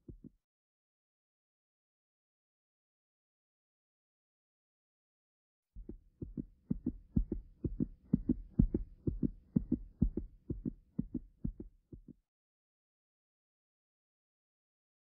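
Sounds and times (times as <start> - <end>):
low paired thumps: 5.8 - 11.6.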